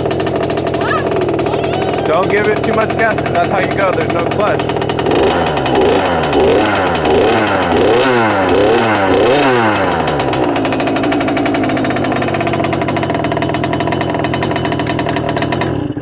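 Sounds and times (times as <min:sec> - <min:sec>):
dirt bike engine revving and idling: 0:00.0 - 0:16.0.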